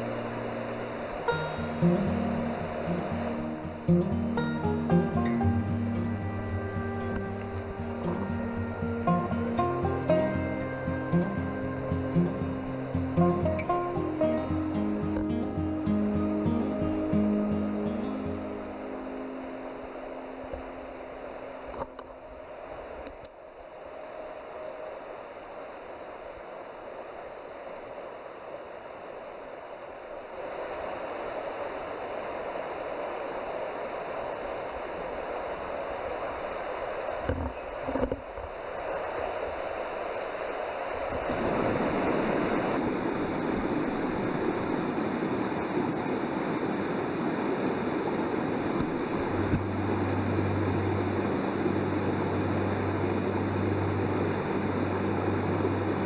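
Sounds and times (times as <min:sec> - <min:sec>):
steady low hum: 0:00.0 - 0:56.0
stream water rushing: 0:00.0 - 0:56.0.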